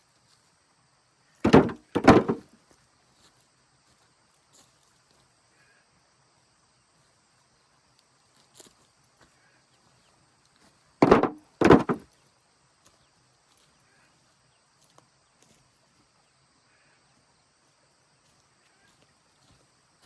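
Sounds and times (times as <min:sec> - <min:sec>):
heavy thuds: 0:01.4 - 0:02.5, 0:11.0 - 0:12.0.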